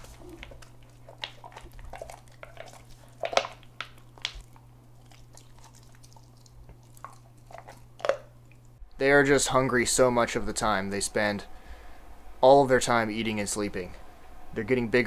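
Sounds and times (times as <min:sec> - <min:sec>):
puppies suckling wet smacking: 0:00.0 - 0:08.7
low electrical hum: 0:00.0 - 0:15.0.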